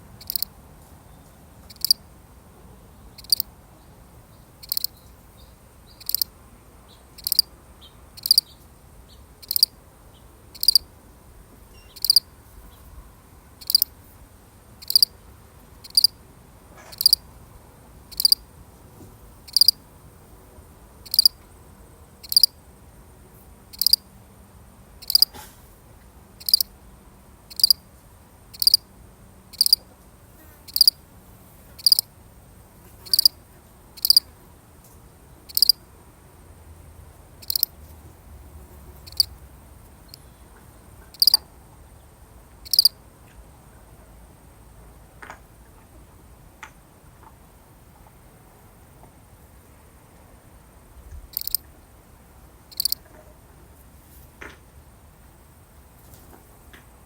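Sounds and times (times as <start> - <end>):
cricket chirping: 0.2 - 0.6, 1.7 - 2.0, 3.1 - 3.5, 4.3 - 10.9, 11.7 - 12.3, 13.6 - 14.0, 14.8 - 15.2, 15.8 - 16.2, 16.8 - 17.3, 18.1 - 18.5, 19.5 - 19.8, 21.0 - 21.4, 22.2 - 22.9, 23.7 - 24.1, 25.0 - 25.4, 26.4 - 26.8, 27.5 - 27.8, 28.5 - 28.9, 29.5 - 29.9, 30.7 - 31.0, 31.8 - 32.1, 33.0 - 34.3, 35.4 - 35.9, 37.2 - 37.8, 38.6 - 43.0, 51.3 - 51.7, 52.7 - 53.1.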